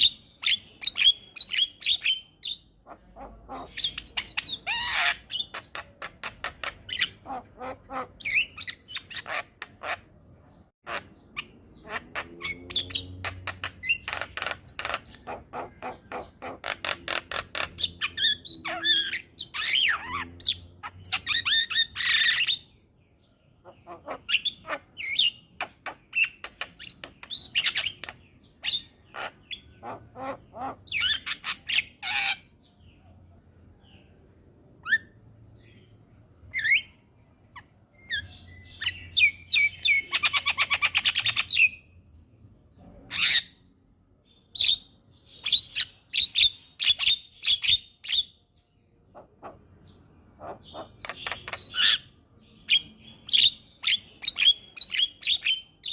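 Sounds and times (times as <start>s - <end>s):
myna harsh calls and chirps: 0.0s - 10.2s, 10.8s - 22.7s, 23.6s - 32.6s, 49.1s - 55.9s.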